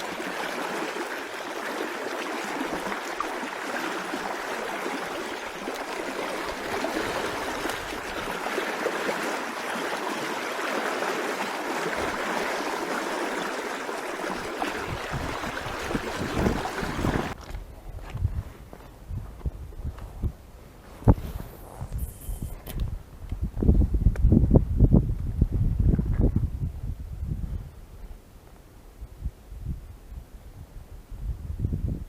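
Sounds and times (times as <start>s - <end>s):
river rushing over rocks: 0.0s - 17.4s.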